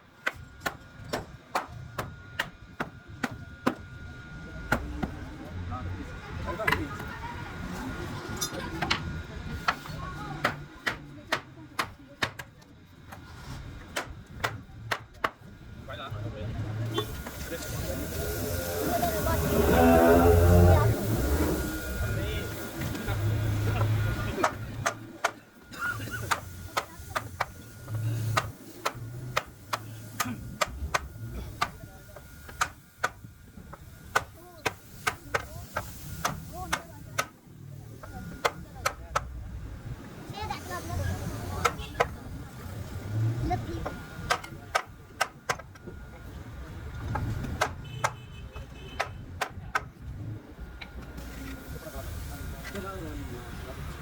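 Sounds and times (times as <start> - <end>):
murmur of voices: 2.9 - 47.8, 48.4 - 54.0
low uneven rumble: 13.3 - 24.9
hand tools tapping wood: 26.2 - 37.3, 43.8 - 45.8, 47.1 - 48.2, 49.0 - 49.9.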